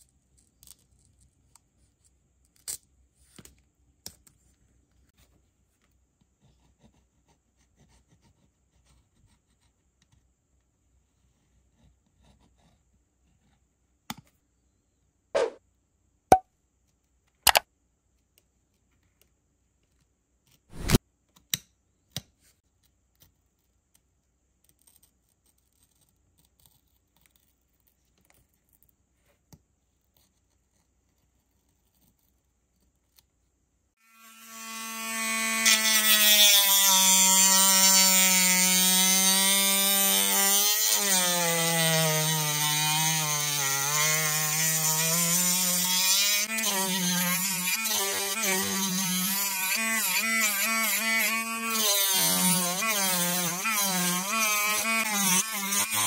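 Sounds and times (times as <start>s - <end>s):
rotary tool sanding plastic: 20.8s - 21.0s, 34.3s - 56.0s
faint clicks and scratches: 22.2s - 33.6s.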